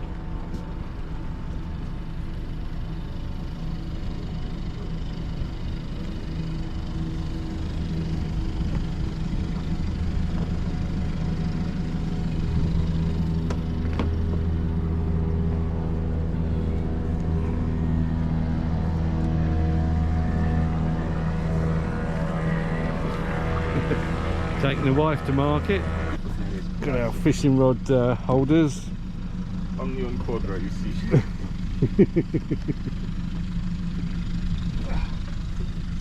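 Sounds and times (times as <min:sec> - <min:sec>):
engine humming: 0:00.0 - 0:36.0.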